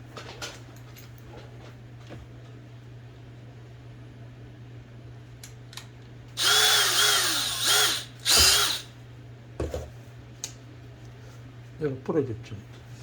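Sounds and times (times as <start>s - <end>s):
small electric drill: 6.4s - 8.9s.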